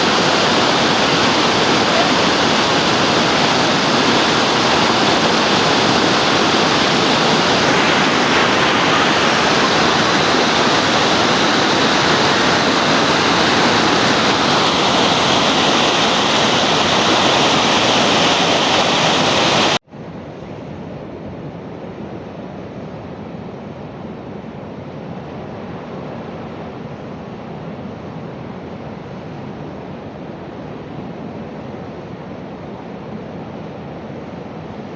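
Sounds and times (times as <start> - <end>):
waterfall rushing: 0.0 - 19.8.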